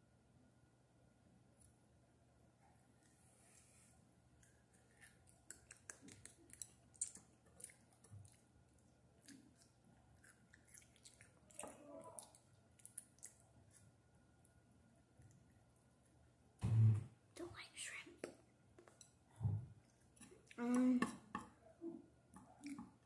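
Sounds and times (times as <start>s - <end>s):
crunchy chewing: 4.4s - 14.6s.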